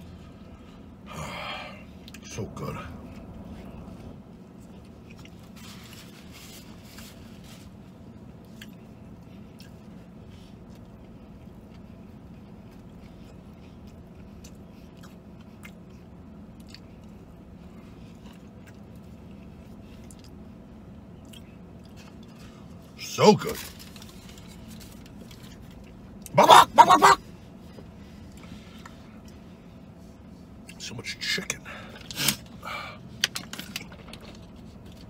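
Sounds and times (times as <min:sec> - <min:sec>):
steady low hum: 0:00.0 - 0:35.0
man chewing with wet smacking: 0:03.0 - 0:23.0, 0:23.6 - 0:26.4.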